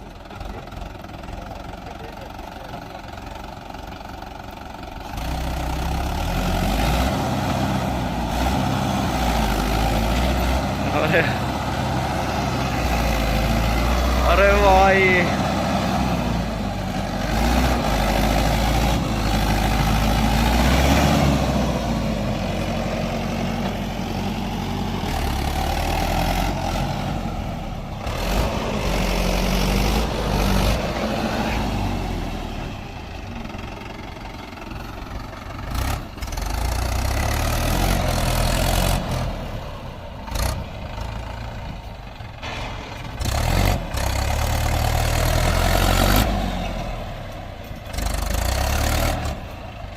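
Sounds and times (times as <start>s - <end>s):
tractor diesel engine working hard: 0.0s - 49.9s.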